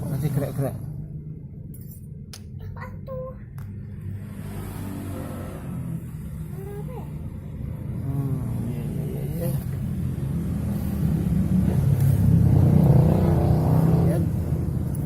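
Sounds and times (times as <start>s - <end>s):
engine humming: 5.0s - 15.0s.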